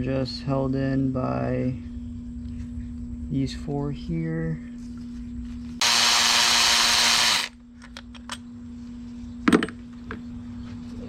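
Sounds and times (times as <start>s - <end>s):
faint steady hum: 0.0s - 11.0s
power drill spinning: 5.8s - 7.6s.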